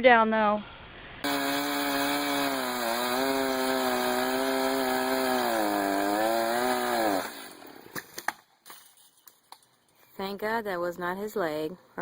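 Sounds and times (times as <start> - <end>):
chainsaw running at high revs: 1.2 - 7.9.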